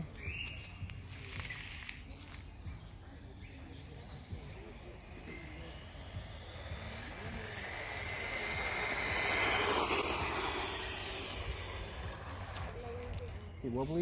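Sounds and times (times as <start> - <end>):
toy truck motor whine: 4.0 - 13.2.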